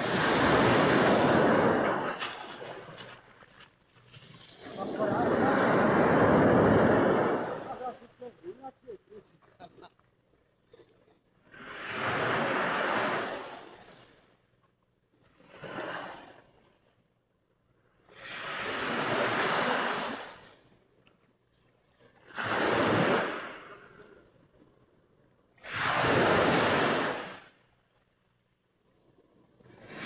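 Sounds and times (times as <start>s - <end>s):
sea waves breaking: 0.0s - 9.3s, 22.3s - 24.0s, 25.6s - 27.4s.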